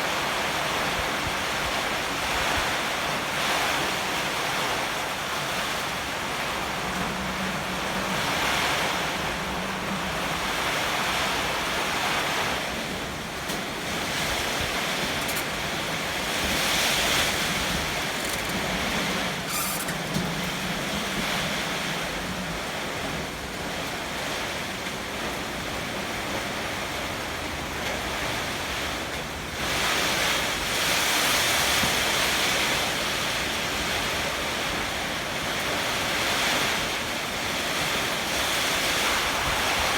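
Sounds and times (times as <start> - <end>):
heavy rain: 0.0 - 39.9
strong wind gusts: 0.0 - 39.9.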